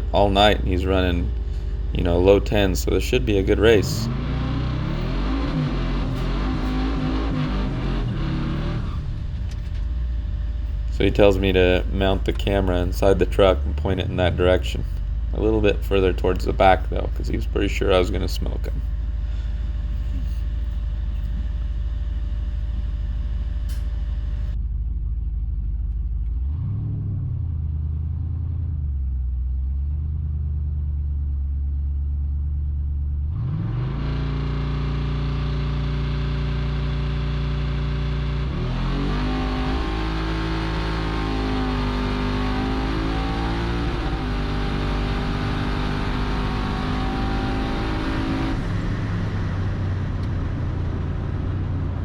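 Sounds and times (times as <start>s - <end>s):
man talking: 0.0s - 4.2s, 10.9s - 18.8s
v eight engine revving: 0.0s - 24.6s, 33.2s - 52.0s.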